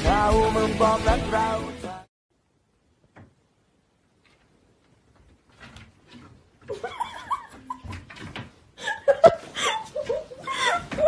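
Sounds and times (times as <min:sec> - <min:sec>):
cat scrabbling on wood: 0:05.1 - 0:08.6.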